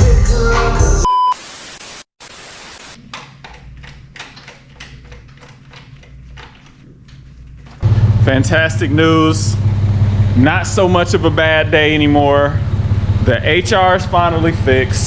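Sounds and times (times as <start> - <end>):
music: 0.0 - 1.1
short beep: 1.0 - 1.4
hiss and static: 1.3 - 3.0
car engine idling: 7.8 - 15.0.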